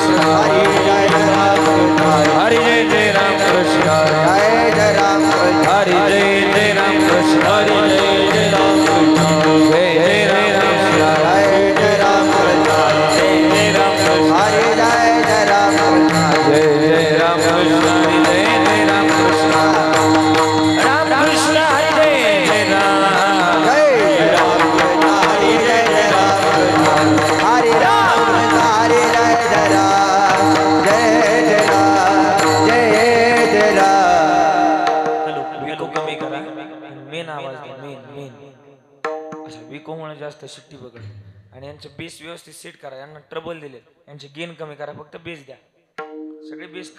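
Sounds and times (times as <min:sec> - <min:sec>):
devotional singing: 0:00.0 - 0:38.3
hand drum playing: 0:23.3 - 0:35.6, 0:39.1 - 0:39.8, 0:46.0 - 0:46.6
drum strokes: 0:41.0 - 0:42.1.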